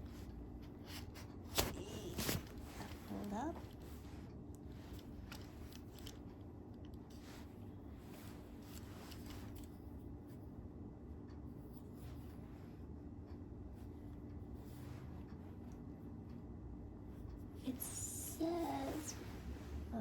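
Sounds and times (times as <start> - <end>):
clicks and rustles of tripod parts: 0.1 - 9.9.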